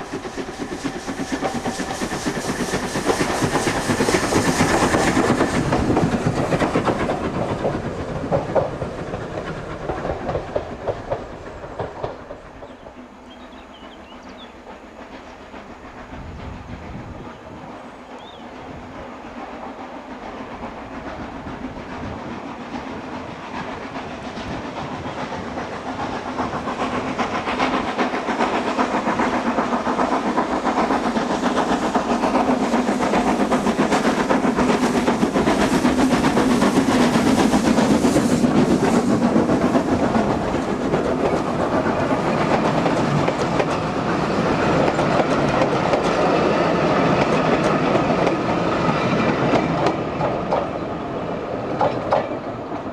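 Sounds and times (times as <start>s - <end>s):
steam train climbing: 0.0s - 52.9s
wheels clattering on rails: 21.1s - 52.9s.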